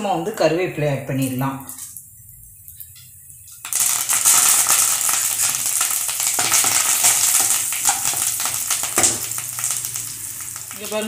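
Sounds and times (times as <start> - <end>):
leaves crackling in hot oil: 0.2 - 11.0.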